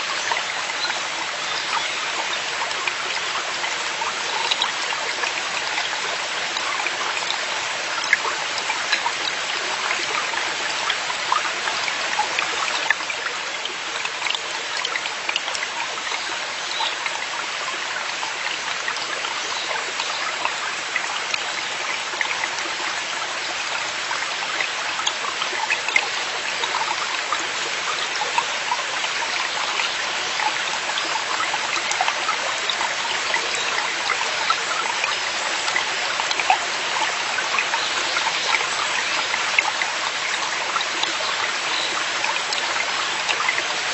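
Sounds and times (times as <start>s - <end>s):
stream water rushing: 0.0s - 43.9s
water splashing and trickling: 0.0s - 43.9s.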